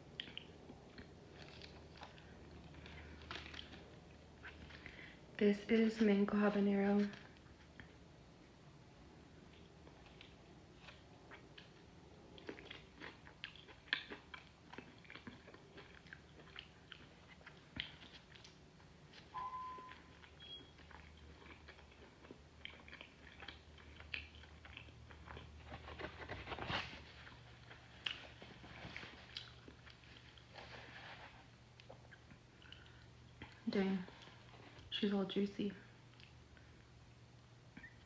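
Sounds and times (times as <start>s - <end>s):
chewing and biting food: 0.0s - 5.0s, 9.4s - 34.9s.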